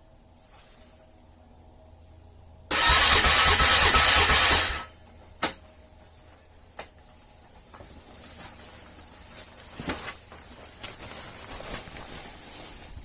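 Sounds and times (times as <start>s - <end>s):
car starter cranking: 2.7s - 4.9s.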